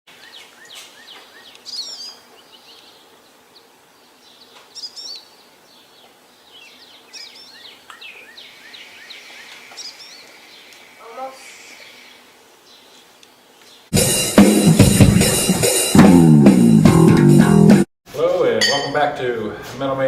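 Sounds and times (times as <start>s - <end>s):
songbirds warbling: 0.1s - 13.9s
background hiss: 0.1s - 16.0s.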